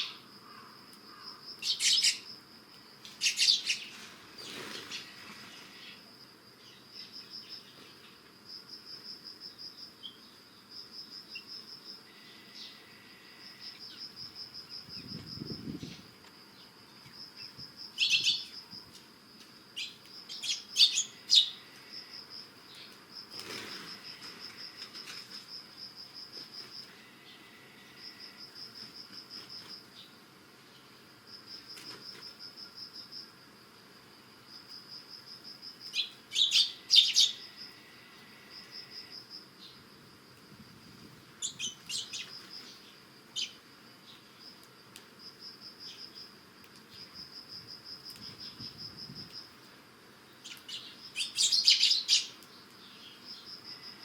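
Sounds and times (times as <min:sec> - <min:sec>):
sparrows chirping: 0:00.0 - 0:02.3, 0:02.9 - 0:08.2, 0:09.5 - 0:10.7, 0:17.4 - 0:18.6, 0:19.8 - 0:21.8, 0:35.9 - 0:37.6, 0:41.4 - 0:44.3, 0:50.3 - 0:53.5
insect pulsing trill: 0:00.0 - 0:07.7, 0:08.5 - 0:19.0, 0:19.7 - 0:30.1, 0:34.5 - 0:43.6, 0:50.4 - 0:54.0.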